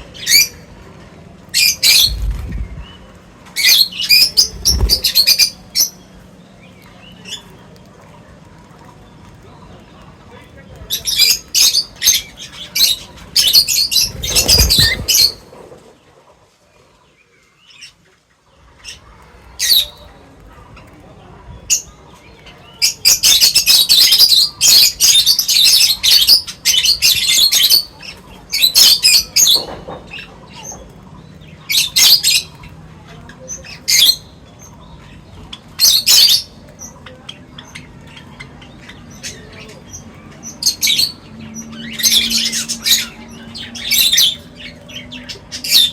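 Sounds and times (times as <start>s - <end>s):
small birds chirping and squawking: 0.0s - 45.9s
low rustle of wings: 1.6s - 3.1s, 4.1s - 5.5s, 13.7s - 16.9s.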